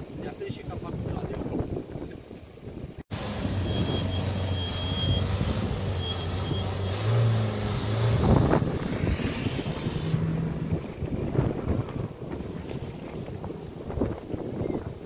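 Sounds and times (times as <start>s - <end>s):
car engine idling and revving: 3.1s - 12.2s
car accelerating away: 3.2s - 11.0s.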